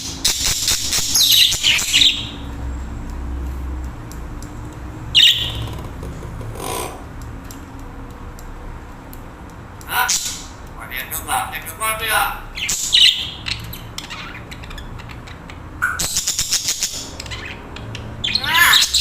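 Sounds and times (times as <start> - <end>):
budgerigars chirping: 0.0 - 2.5, 5.1 - 5.8, 9.9 - 19.0.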